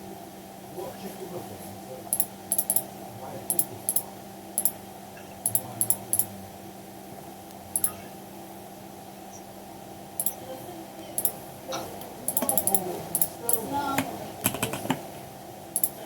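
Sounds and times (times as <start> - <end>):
computer fan hum: 0.0 - 16.0
mouse and keyboard clicks: 2.2 - 2.8, 14.4 - 15.0, 15.8 - 16.0.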